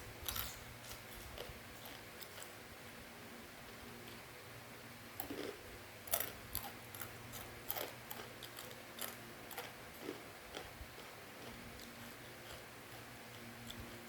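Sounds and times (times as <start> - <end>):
crunchy snack being chewed: 0.2 - 2.6, 5.2 - 14.0.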